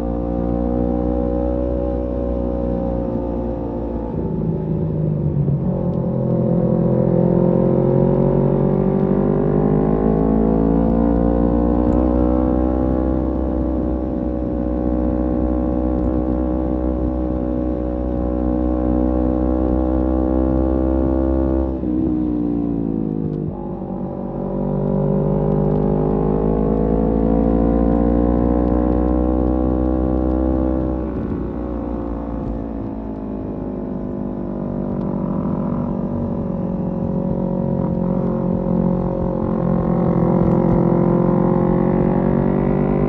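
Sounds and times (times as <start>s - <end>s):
motorcycle engine accelerating: 0.0s - 43.0s
low rumble: 3.1s - 9.1s, 21.7s - 28.9s, 29.8s - 42.5s.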